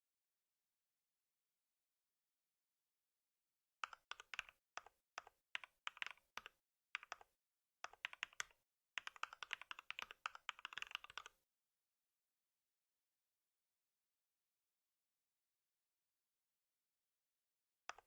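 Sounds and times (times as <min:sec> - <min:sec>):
computer keyboard typing: 0:03.8 - 0:11.4.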